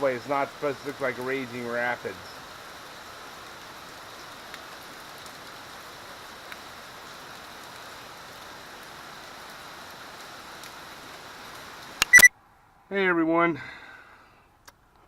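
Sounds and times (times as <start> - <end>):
heavy rain hiss: 0.0 - 12.2
rushing runoff water: 0.0 - 12.2.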